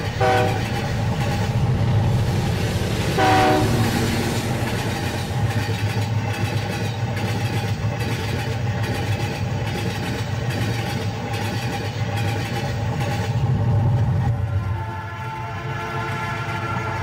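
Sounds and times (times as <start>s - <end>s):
steam train rumbling: 0.0s - 17.0s.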